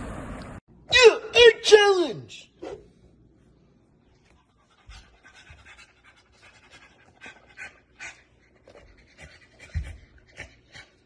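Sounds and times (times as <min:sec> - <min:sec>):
dog panting: 0:04.2 - 0:11.0.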